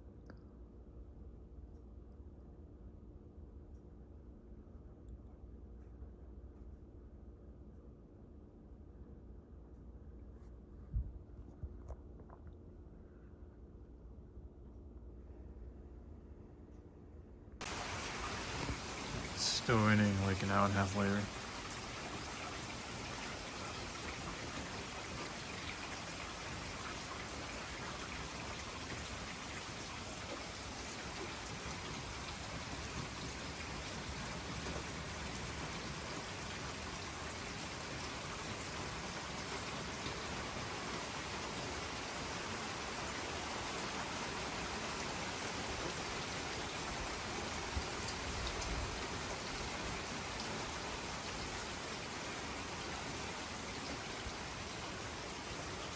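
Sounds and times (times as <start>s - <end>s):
raindrops ticking: 17.6s - 41.1s
steady rain hiss: 17.6s - 55.9s.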